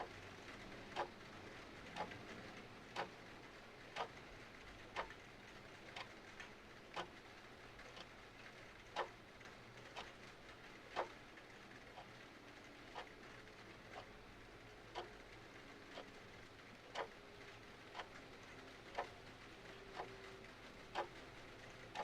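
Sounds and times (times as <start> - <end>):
faint rain hiss: 0.0 - 22.0
clock ticking: 0.8 - 1.2, 2.0 - 2.2, 2.9 - 3.2, 3.8 - 4.2, 4.9 - 5.2, 5.9 - 6.2, 6.9 - 7.2, 7.9 - 8.1, 8.9 - 9.2, 9.9 - 10.2, 10.9 - 11.2, 11.9 - 13.2, 14.9 - 15.2, 15.9 - 22.0.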